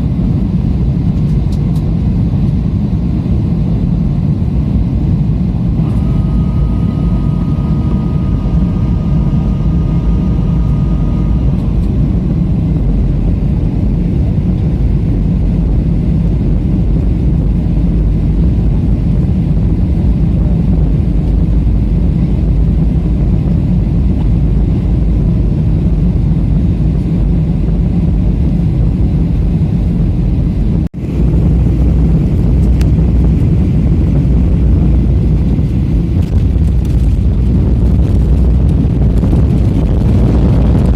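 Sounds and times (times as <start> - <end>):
jet airliner cabin roar: 0.0 - 40.9
faint whining tone: 3.2 - 19.0.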